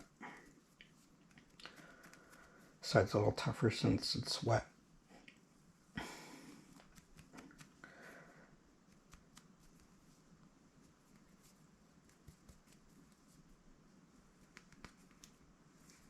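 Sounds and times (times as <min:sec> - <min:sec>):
cord fibres rustling and clicking: 0:00.0 - 0:02.8, 0:06.7 - 0:07.8, 0:08.8 - 0:13.6, 0:14.3 - 0:16.0.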